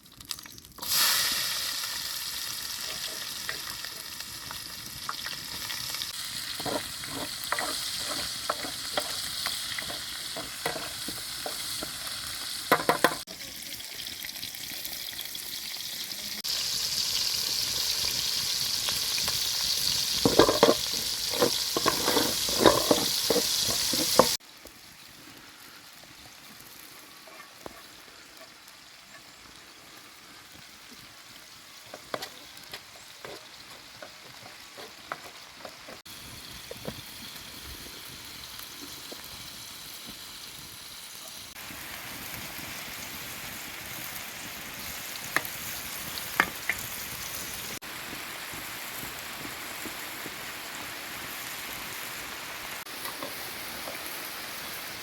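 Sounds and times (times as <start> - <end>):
food sizzling in a pan: 0.0 - 55.0
utensil scraping and knocking pan: 6.4 - 13.2, 20.2 - 24.4.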